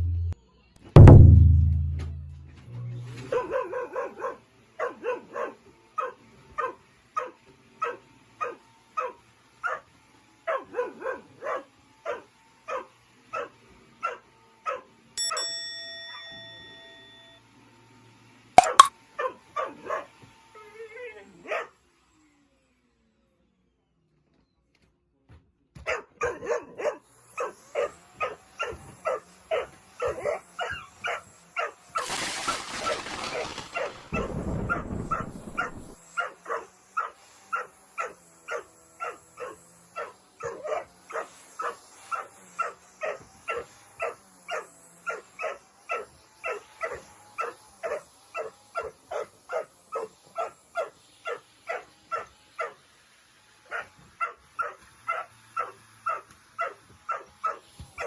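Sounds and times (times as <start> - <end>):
dog barking rapidly: 25.9 - 52.8, 53.7 - 58.0.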